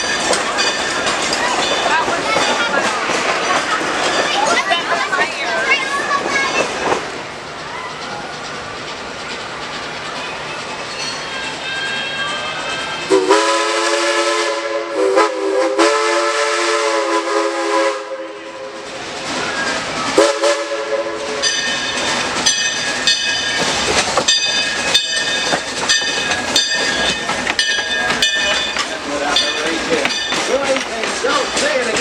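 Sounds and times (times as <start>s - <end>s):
locomotive bell ringing: 0.0s - 6.9s, 9.8s - 13.4s, 21.1s - 32.0s
train running noise: 0.0s - 32.0s
steam locomotive chime whistle: 10.9s - 18.8s, 20.2s - 23.6s.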